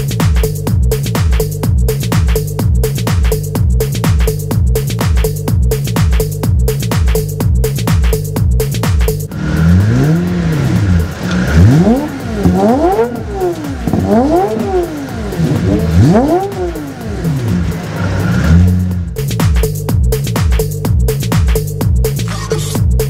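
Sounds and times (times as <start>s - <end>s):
electronic music: 0.0s - 23.0s
car engine revving hard: 9.3s - 19.2s.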